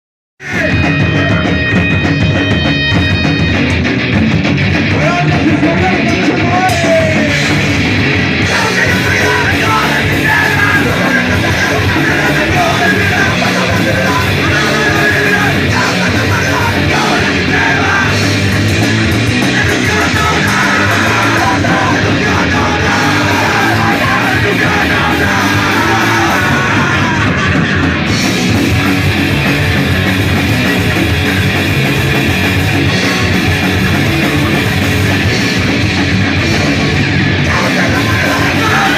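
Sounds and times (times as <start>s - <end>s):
bass guitar: 0.4s - 38.9s
distorted electric guitars: 0.4s - 38.9s
drums: 0.4s - 38.9s
shouted vocals: 5.0s - 7.6s, 8.4s - 18.6s, 19.4s - 28.1s, 37.4s - 38.9s.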